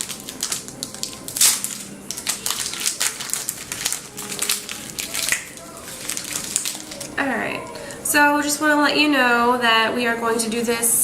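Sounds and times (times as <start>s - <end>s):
packaging crinkling and tearing: 0.0s - 8.0s.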